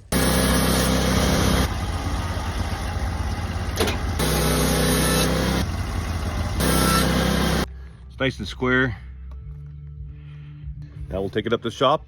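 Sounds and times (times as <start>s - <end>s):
sawmill engine running: 0.0s - 7.7s.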